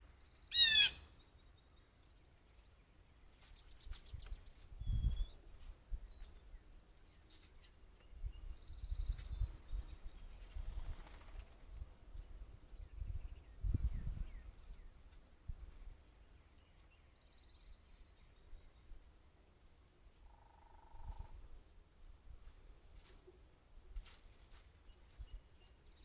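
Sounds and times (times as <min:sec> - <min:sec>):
bird harsh call: 0:00.5 - 0:01.1
small birds chirping and whistling: 0:02.8 - 0:06.6, 0:07.2 - 0:11.2.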